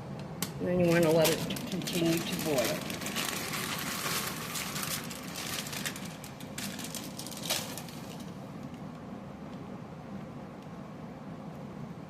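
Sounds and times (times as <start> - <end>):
water boiling and bubbling: 0.7 - 8.7.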